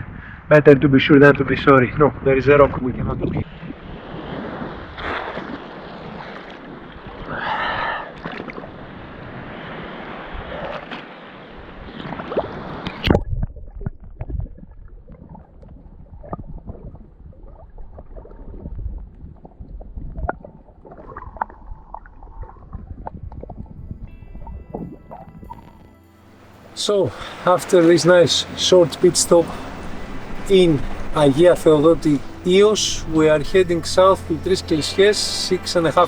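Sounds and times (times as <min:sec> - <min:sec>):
wind on microphone: 0:01.8 - 0:34.5
water sloshing and gurgling: 0:03.3 - 0:36.0.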